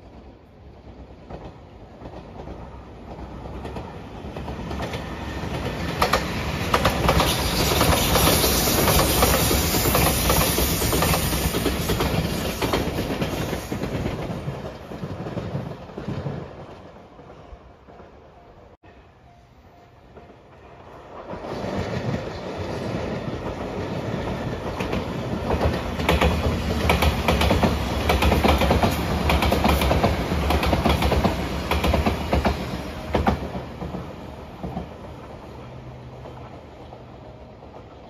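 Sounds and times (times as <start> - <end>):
train wheels clacking over rail joints: 1.3 - 16.3, 23.4 - 34.9.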